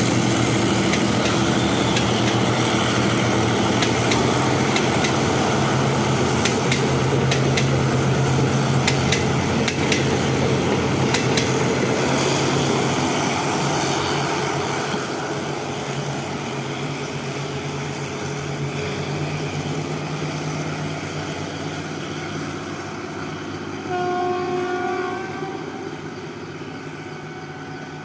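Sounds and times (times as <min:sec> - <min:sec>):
train wheels clicking over rail joints: 0:00.0 - 0:13.1
low diesel drone: 0:00.0 - 0:28.0.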